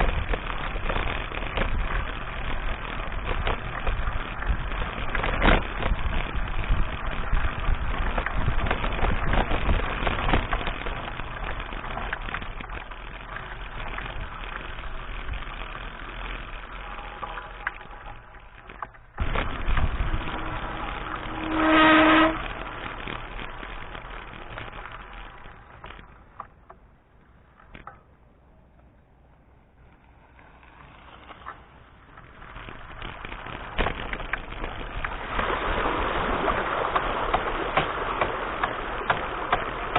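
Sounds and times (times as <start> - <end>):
wind rumble on microphone: 0.0 - 27.9, 28.6 - 39.9
bike rattling on dirt track: 0.0 - 39.9
steady-pitched tone: 19.2 - 25.6.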